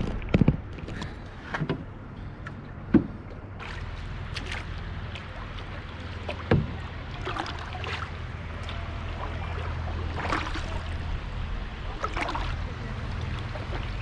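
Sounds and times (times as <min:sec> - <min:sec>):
steady low hum: 0:00.0 - 0:14.0
paddle knocking against hull: 0:02.9 - 0:08.0
canoe paddle splashing water: 0:03.0 - 0:14.0.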